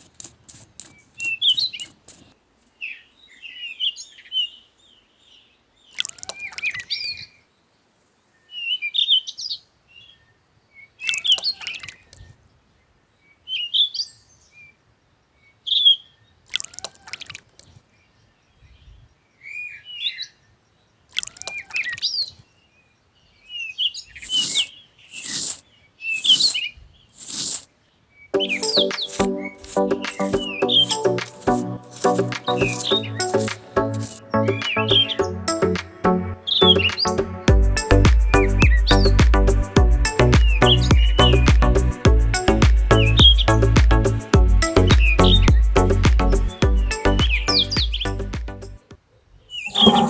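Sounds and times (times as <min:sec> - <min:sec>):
birds chirping and trilling: 0:27.8 - 0:48.8, 0:49.4 - 0:50.0
loud sweeping bird call: 0:28.3 - 0:43.6.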